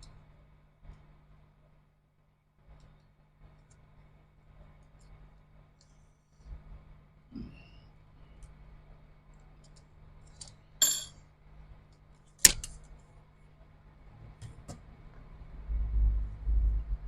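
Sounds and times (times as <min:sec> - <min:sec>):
low steady hum: 0:00.0 - 0:17.0
metallic clink: 0:10.8 - 0:11.2
sharp click: 0:12.4 - 0:12.8.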